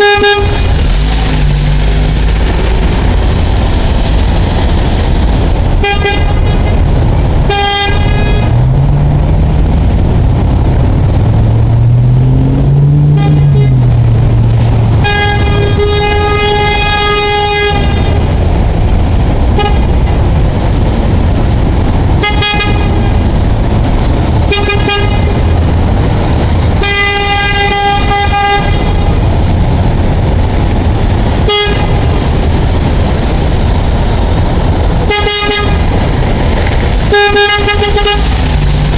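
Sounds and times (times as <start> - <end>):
vehicle horn honking: 0.0 - 0.9, 5.8 - 6.8, 7.5 - 8.6, 13.1 - 13.8, 15.0 - 18.2, 22.2 - 23.1, 26.8 - 29.1, 35.1 - 35.8, 37.1 - 38.4
loud engine rumble: 0.0 - 38.9.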